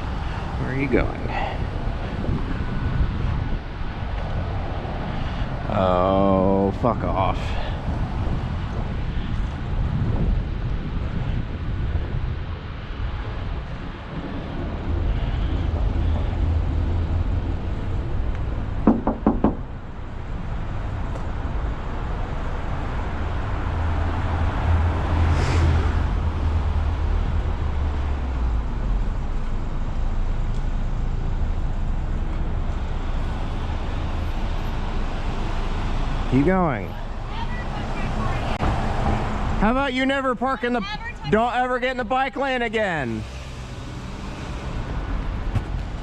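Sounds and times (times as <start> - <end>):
wind on microphone: 0.0 - 5.8, 7.3 - 19.7
street traffic: 0.0 - 46.0
hand knocking on car: 18.8 - 19.7.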